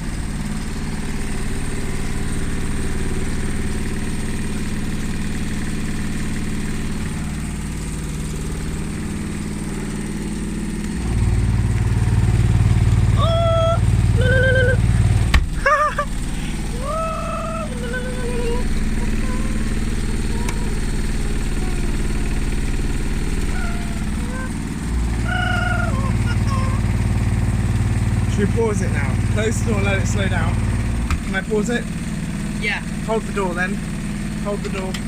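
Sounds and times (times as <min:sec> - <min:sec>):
washing machine spinning: 0:00.0 - 0:35.0
short voiced calls: 0:13.2 - 0:14.8, 0:23.4 - 0:24.6, 0:25.2 - 0:26.9.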